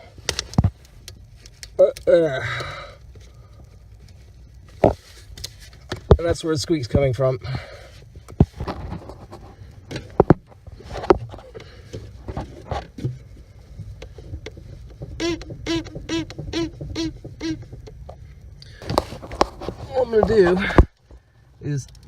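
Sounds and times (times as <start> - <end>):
steering shaft squeaking on rubber: 12.3 - 18.2.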